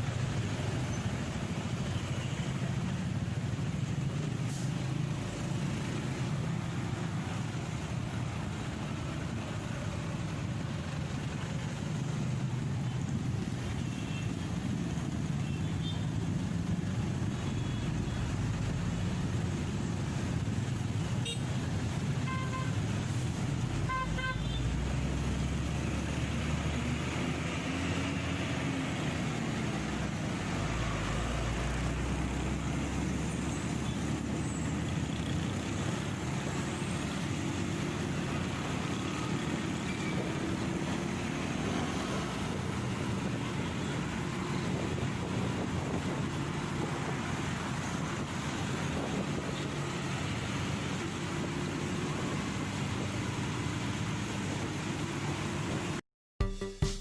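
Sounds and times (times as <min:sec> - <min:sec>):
motorcycle engine and tyre noise: 0:00.0 - 0:56.0
traffic noise: 0:00.0 - 0:56.0
wind on microphone: 0:44.4 - 0:50.9.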